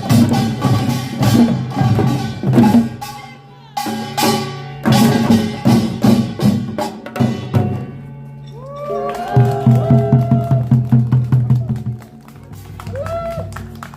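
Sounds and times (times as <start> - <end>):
drum and gong strikes: 0.0 - 8.0.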